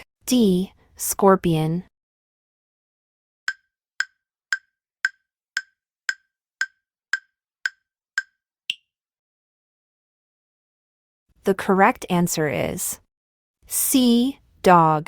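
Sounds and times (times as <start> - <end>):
woody timer ticks: 3.5 - 8.8.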